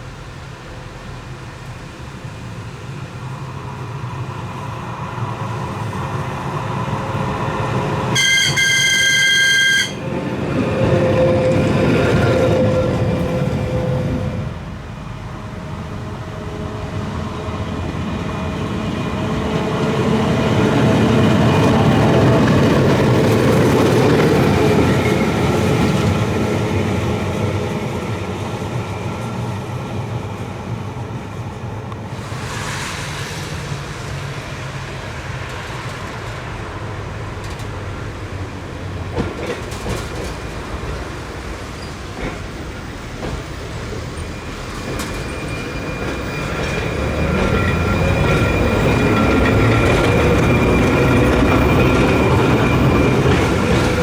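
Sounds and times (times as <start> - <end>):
tram rumbling on rails: 0.0 - 54.0
short hiss: 32.0 - 35.4.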